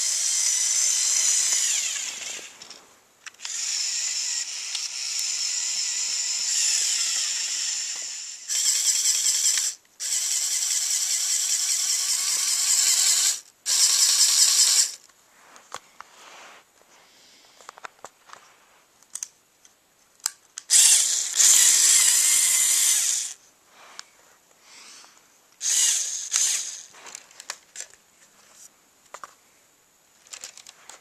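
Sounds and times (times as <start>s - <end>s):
toy truck motor whining: 0.0s - 2.7s, 3.3s - 15.0s, 20.7s - 23.4s, 25.6s - 27.2s.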